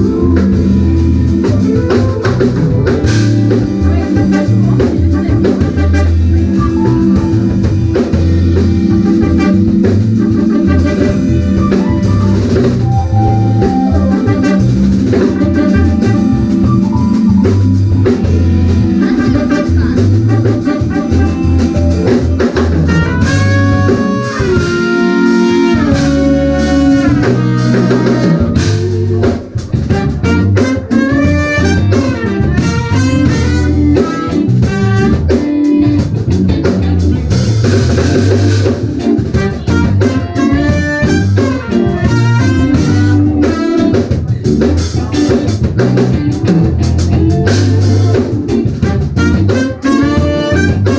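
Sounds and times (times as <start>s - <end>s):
lead melody bending in pitch: 0.0s - 44.1s
drum kit: 0.0s - 50.9s
electric bass: 0.0s - 50.9s.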